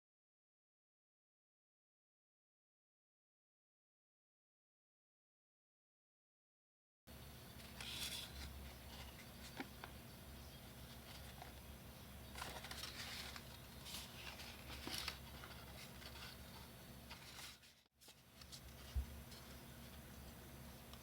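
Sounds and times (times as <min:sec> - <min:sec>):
paper rustling: 0:07.6 - 0:21.0.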